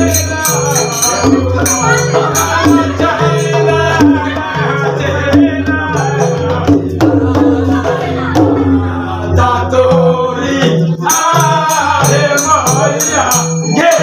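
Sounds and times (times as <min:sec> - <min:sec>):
brass hand cymbals clashing: 0:00.0 - 0:04.1
hand drum rhythm: 0:00.0 - 0:14.0
person singing: 0:00.0 - 0:14.0.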